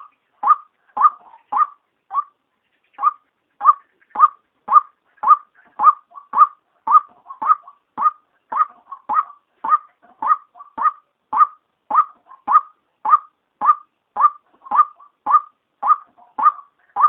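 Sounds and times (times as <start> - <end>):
waterhen calling short sharp notes: 0.0 - 17.0.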